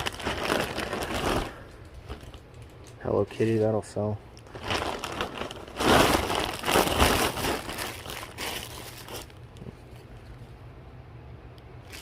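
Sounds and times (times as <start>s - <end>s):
packaging crinkling: 0.0s - 3.0s, 4.3s - 10.0s.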